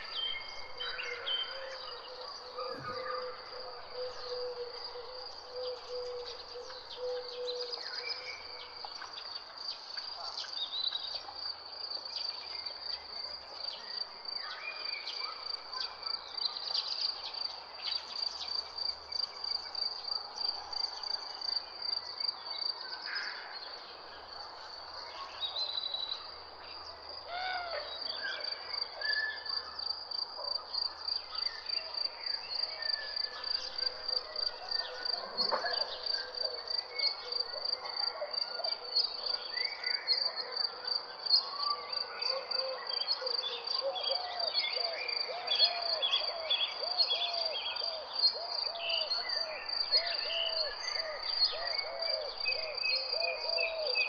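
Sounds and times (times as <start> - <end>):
birds chirping and calling: 0.0 - 8.6, 34.6 - 37.3
cricket chirping: 0.0 - 54.0.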